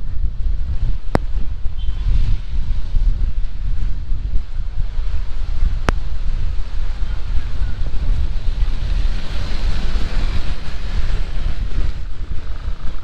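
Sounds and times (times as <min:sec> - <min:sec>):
wind buffeting microphone: 0:00.0 - 0:13.0
heavy rain pouring: 0:03.2 - 0:13.0.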